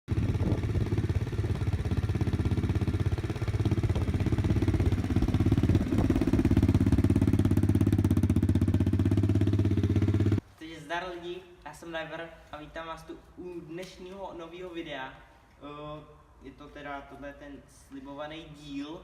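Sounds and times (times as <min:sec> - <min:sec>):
pit bike engine idling: 0:00.1 - 0:10.4.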